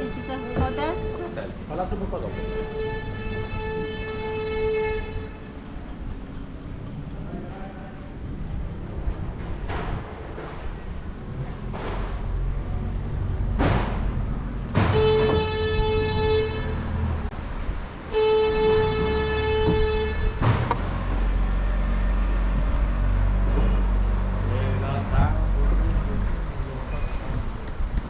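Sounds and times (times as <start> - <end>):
boat horn blasts: 2.3 - 5.4, 14.8 - 17.1, 18.1 - 20.5, 21.1 - 23.1.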